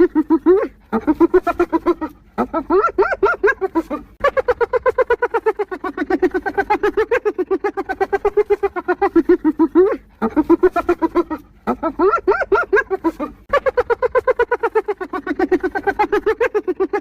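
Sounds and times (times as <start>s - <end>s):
hyena giggling: 0.0s - 17.0s.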